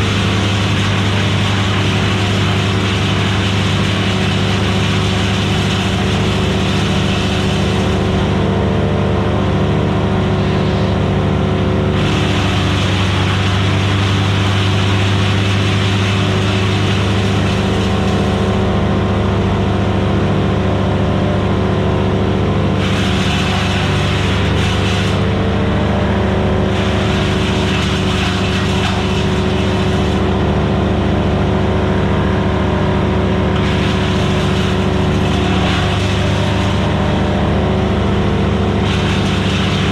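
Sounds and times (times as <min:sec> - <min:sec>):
chipper hiss: 0:00.0 - 0:08.5, 0:11.9 - 0:18.7, 0:22.8 - 0:25.5, 0:26.6 - 0:30.4, 0:33.6 - 0:39.9
wood chipper engine running: 0:00.0 - 0:39.9.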